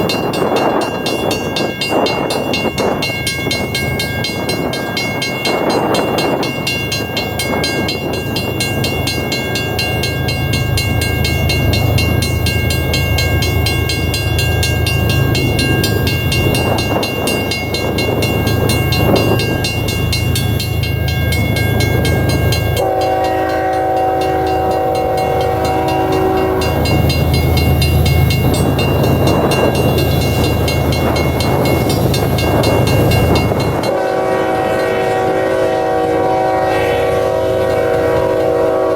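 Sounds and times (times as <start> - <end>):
crossing bell ringing: 0.0 - 38.9
diesel locomotives rumbling: 0.0 - 38.9
locomotive air horn blast: 22.8 - 26.8, 33.9 - 38.9.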